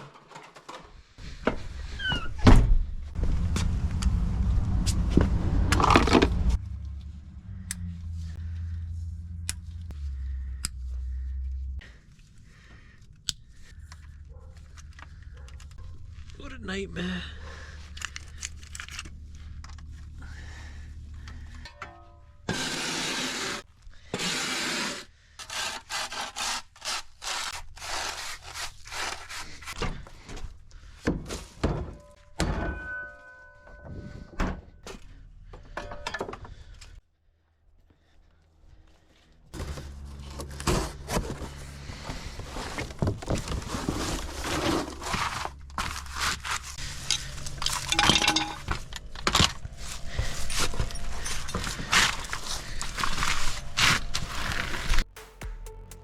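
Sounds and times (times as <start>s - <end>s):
hand tools knocking on metal parts: 47.8s - 48.8s.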